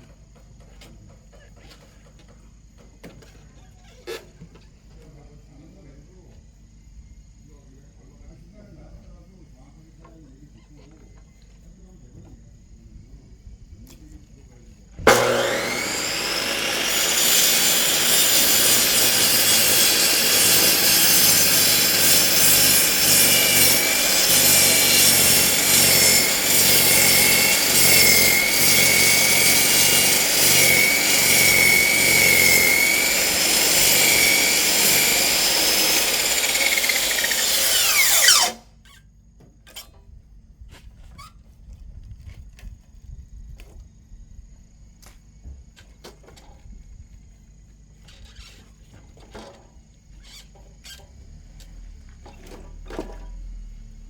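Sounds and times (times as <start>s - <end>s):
chop saw cutting log: 15.0s - 38.7s.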